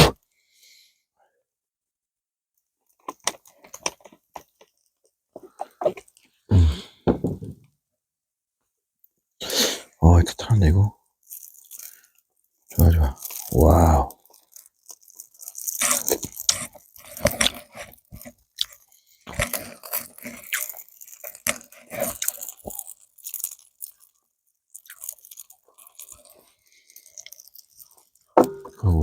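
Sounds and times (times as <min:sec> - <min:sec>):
crunching and chewing food: 0:02.8 - 0:07.0, 0:11.0 - 0:29.0.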